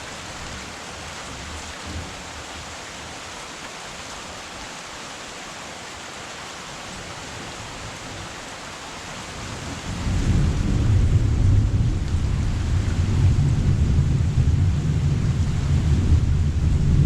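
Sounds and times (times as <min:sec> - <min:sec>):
heavy rain falling: 0:00.0 - 0:17.0
low rumble of thunder: 0:09.4 - 0:17.0.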